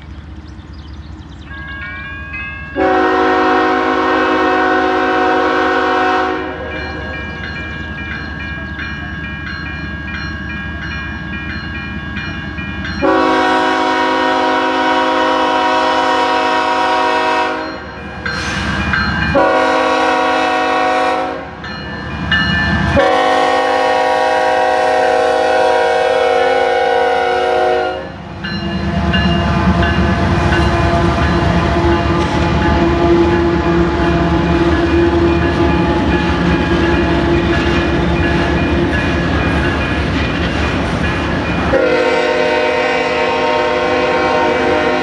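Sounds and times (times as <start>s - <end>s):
diesel locomotives rumbling past: 0.0s - 45.0s
locomotive air horn blasts: 2.8s - 6.8s, 13.0s - 17.8s, 19.3s - 21.6s, 22.9s - 28.2s, 28.8s - 36.0s, 41.7s - 45.0s.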